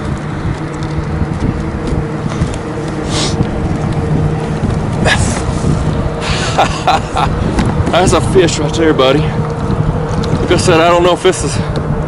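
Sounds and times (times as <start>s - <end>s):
low hum: 0.0s - 12.0s
wind buffeting microphone: 0.0s - 12.0s
short hisses: 3.1s - 3.4s.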